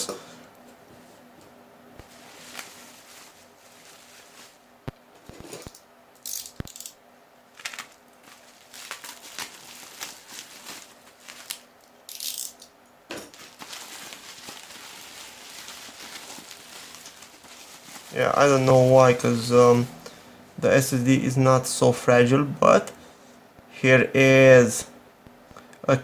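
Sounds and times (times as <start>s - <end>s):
bubble wrap crinkling: 2.0s - 5.7s, 7.5s - 12.4s, 13.2s - 19.9s.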